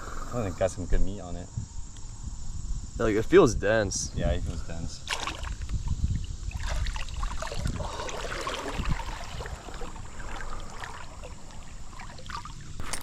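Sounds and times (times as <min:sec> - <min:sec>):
microphone handling rumble: 0:00.9 - 0:13.0
creek water splashing and trickling: 0:05.0 - 0:13.0.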